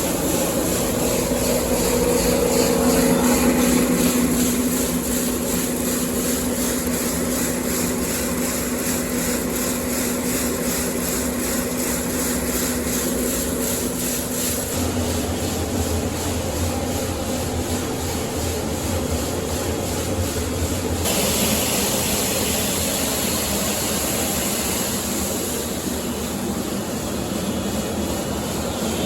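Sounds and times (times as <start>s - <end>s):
farm machinery pulsing: 0.0s - 17.6s
deeper machine hum: 0.0s - 29.0s.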